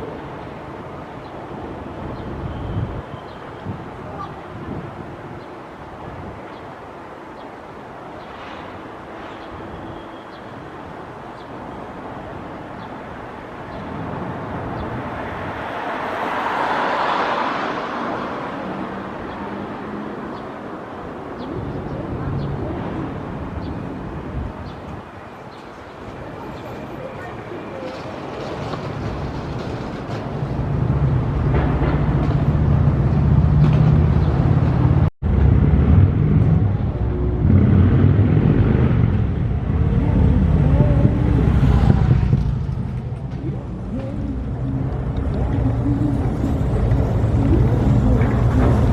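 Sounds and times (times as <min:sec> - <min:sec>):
street traffic: 0:00.0 - 0:48.9
vehicle passing close by: 0:15.0 - 0:20.3, 0:30.6 - 0:43.2.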